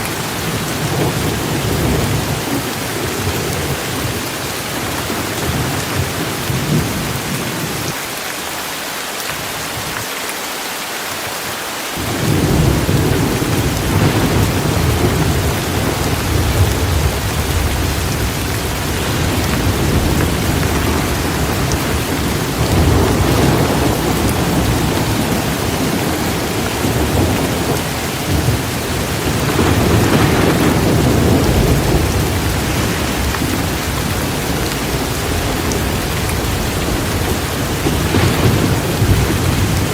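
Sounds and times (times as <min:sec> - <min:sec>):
heavy rain: 0:00.0 - 0:39.9
rolling thunder: 0:12.0 - 0:39.9.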